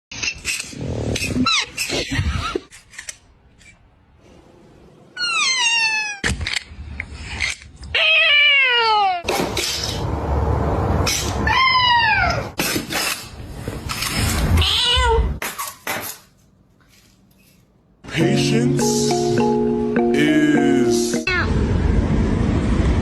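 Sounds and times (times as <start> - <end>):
cat meowing: 14.6 - 15.4.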